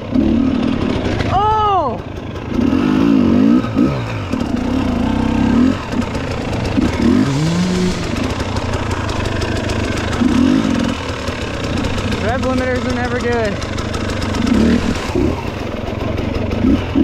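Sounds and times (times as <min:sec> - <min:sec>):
dirt bike engine revving: 0:00.0 - 0:17.0
second engine note climbing: 0:00.1 - 0:17.0.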